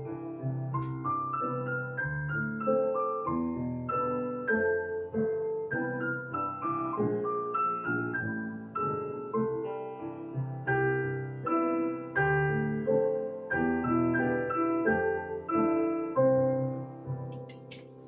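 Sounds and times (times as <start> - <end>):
piano notes and chords: 0.0 - 18.0.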